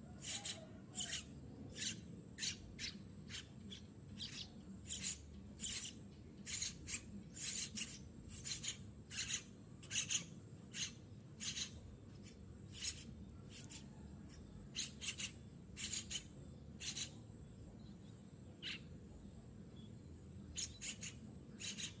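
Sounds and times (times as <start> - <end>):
nestling begging calls: 0.2 - 11.8, 14.7 - 17.2, 18.6 - 18.8, 20.5 - 22.0.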